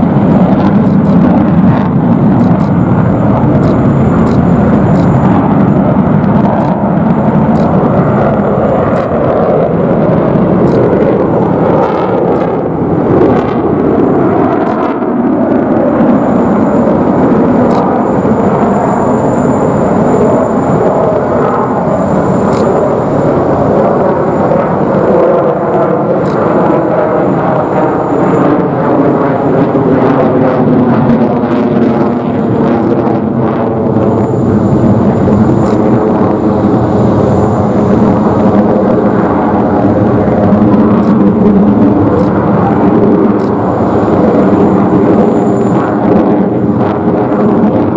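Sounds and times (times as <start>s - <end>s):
jet engines roaring past: 0.0s - 47.9s.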